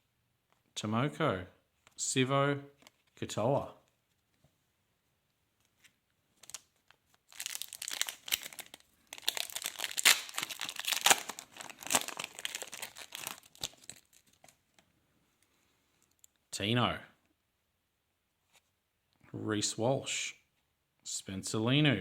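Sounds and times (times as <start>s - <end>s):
wrapper torn and crinkled: 6.4s - 14.6s.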